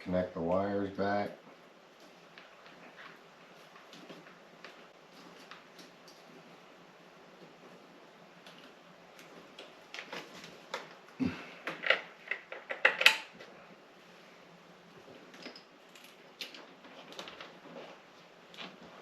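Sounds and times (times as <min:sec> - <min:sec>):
plastic parts clicking and rattling: 0:11.6 - 0:13.4.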